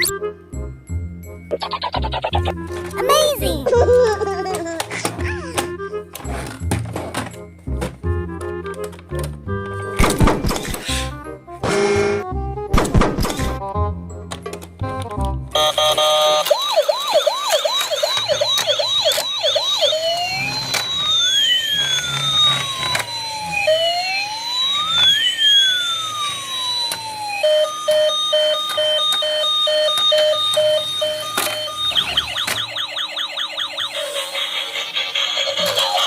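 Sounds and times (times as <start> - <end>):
repeated beeps: 1.5 - 2.6
siren wails rising and falling: 1.5 - 2.8, 15.6 - 36.0
electronic siren yelp: 15.6 - 36.0.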